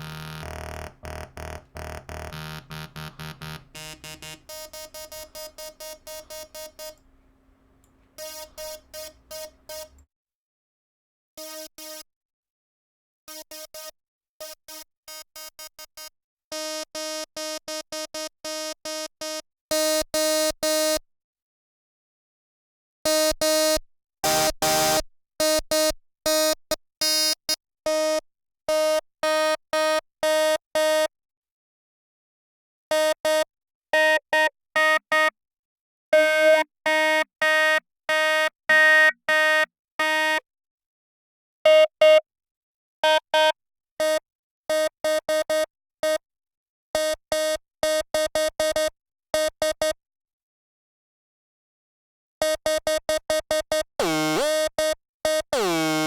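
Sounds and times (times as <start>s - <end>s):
buzzy synthesizer burst: 0.0s - 4.5s
synthesizer note stabs: 0.0s - 4.6s.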